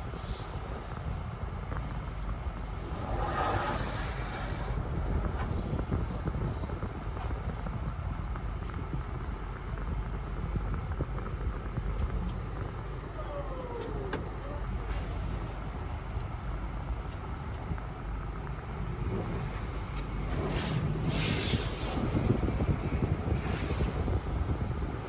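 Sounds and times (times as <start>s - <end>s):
car wash rumble and rushing: 0.0s - 25.0s
hiss of spray: 2.8s - 4.8s, 18.9s - 24.4s.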